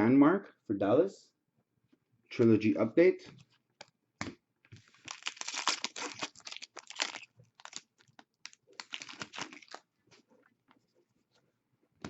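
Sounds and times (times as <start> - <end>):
card packaging crinkling: 4.8 - 9.9.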